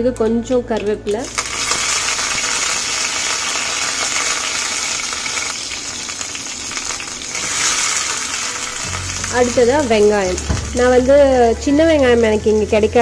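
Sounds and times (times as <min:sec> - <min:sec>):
leaves sizzling in hot oil: 0:01.2 - 0:13.0.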